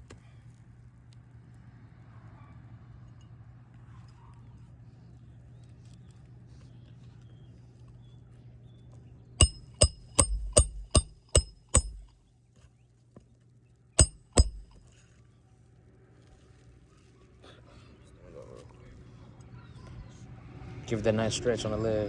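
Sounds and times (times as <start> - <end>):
hammer striking roofing nails: 9.4 - 12.1, 14.0 - 14.8.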